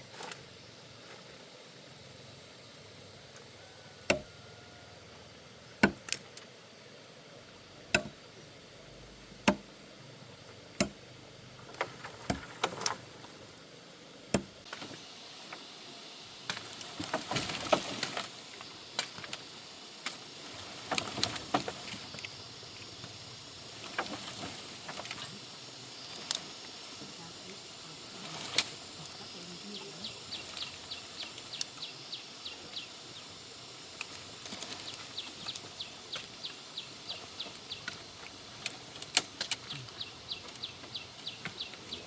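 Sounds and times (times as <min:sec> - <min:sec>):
leaves and twigs rustling: 0:00.0 - 0:04.8, 0:05.6 - 0:42.0
wood being chopped: 0:04.1 - 0:04.3, 0:05.8 - 0:06.2, 0:07.9 - 0:08.2, 0:09.4 - 0:09.7, 0:10.8 - 0:11.0, 0:14.3 - 0:14.7.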